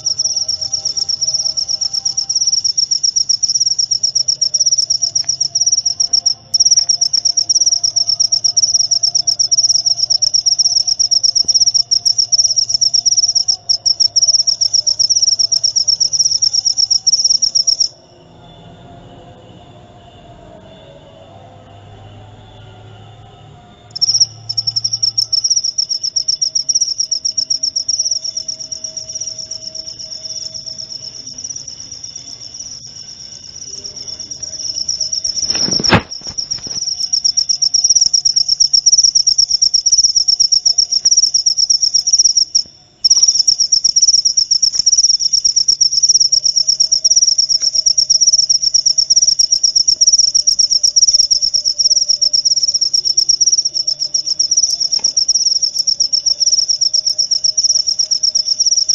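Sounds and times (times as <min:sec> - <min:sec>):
cricket trilling: 0:00.0 - 0:58.9.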